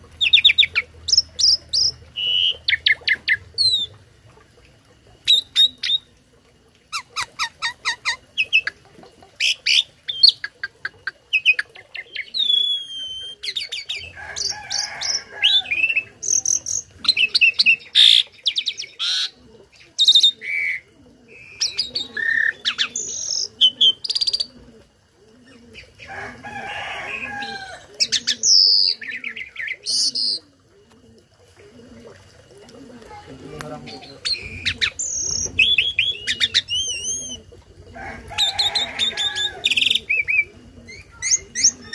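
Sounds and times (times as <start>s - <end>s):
starling singing: 33.1s - 37.5s.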